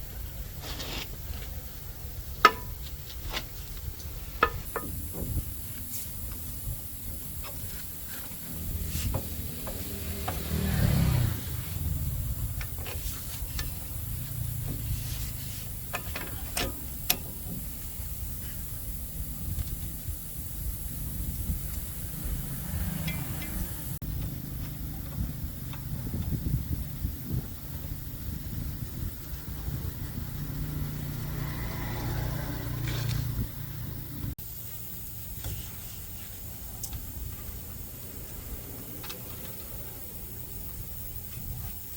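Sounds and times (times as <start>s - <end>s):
truck engine humming: 1.2s - 41.9s
steady low rumble: 1.3s - 31.5s.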